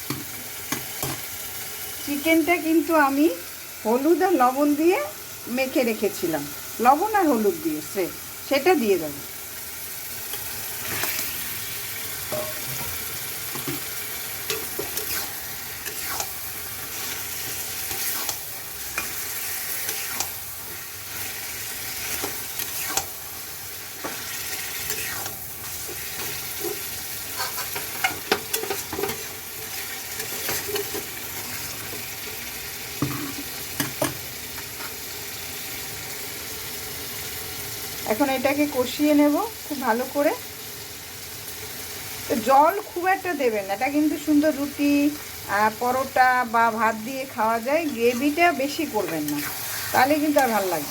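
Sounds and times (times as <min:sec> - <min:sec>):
chicken sizzling in a pan: 0:00.0 - 0:50.9
spatula scraping a pan: 0:10.3 - 0:11.6, 0:12.4 - 0:23.2, 0:24.0 - 0:31.9, 0:47.8 - 0:50.9
clinks against the pan: 0:12.3 - 0:13.0.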